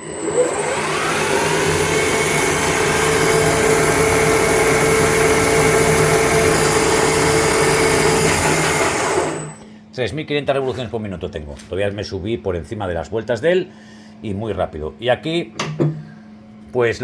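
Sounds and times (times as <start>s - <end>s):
lathe spindle motor whine: 0.0s - 9.6s.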